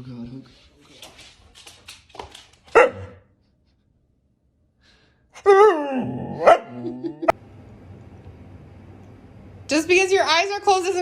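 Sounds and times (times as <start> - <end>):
dog barking: 2.7 - 3.3, 6.4 - 6.8.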